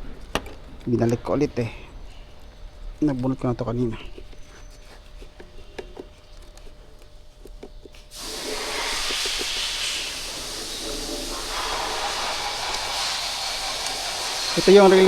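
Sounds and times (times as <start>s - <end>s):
hissing air rush: 8.0s - 15.0s.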